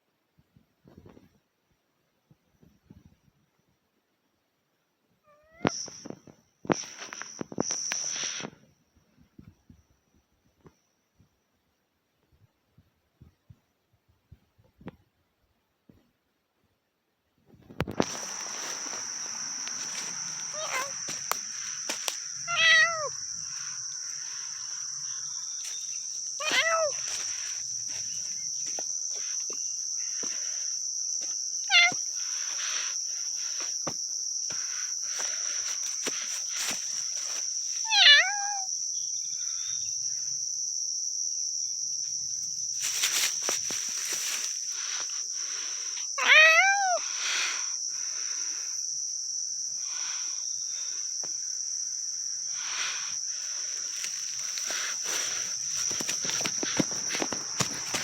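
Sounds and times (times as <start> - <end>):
crickets chirring: 0.8 - 58.0
footsteps: 17.9 - 22.4, 23.4 - 29.6, 33.6 - 37.5, 42.8 - 45.1, 53.8 - 58.0
short meow-like calls: 20.5 - 21.0, 22.4 - 23.2, 26.4 - 27.1, 37.8 - 38.7, 46.2 - 47.0
light rustling: 53.9 - 58.0.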